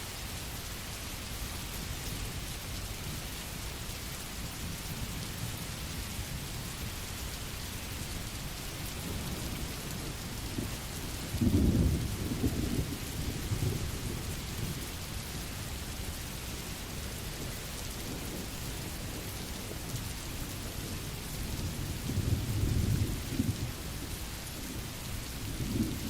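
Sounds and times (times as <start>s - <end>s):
steady rain: 0.0s - 26.0s
low roll of thunder: 8.7s - 26.0s.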